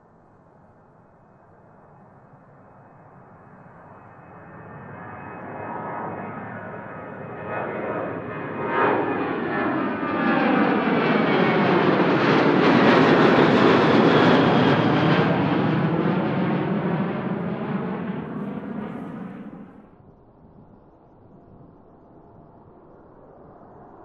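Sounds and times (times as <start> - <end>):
jet airliner passing: 1.2 - 20.0.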